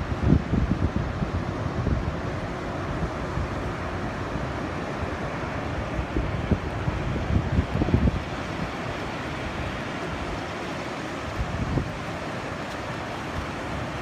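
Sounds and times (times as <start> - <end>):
surf rushing: 0.0 - 14.0
wind buffeting microphone: 0.0 - 14.0.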